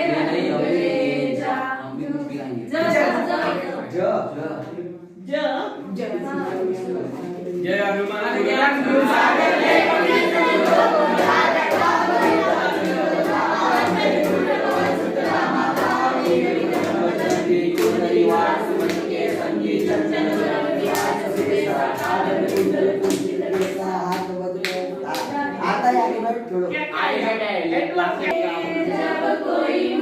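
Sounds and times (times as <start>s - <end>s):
group singing in chorus: 0.0s - 4.0s, 5.9s - 25.7s, 27.9s - 30.0s
rhythmic hand-clapping: 6.3s - 25.8s.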